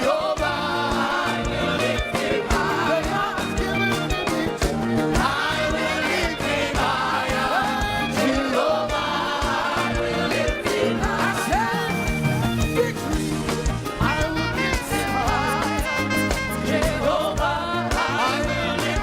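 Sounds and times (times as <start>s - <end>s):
people singing together: 0.0s - 13.4s, 15.0s - 19.0s
band playing: 0.0s - 19.0s
drum beat: 0.2s - 19.0s.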